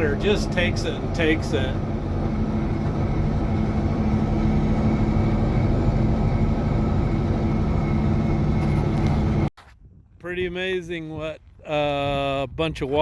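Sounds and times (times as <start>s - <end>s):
heavy diesel engine droning: 0.0s - 9.5s
machine driving over gravel: 0.0s - 9.5s.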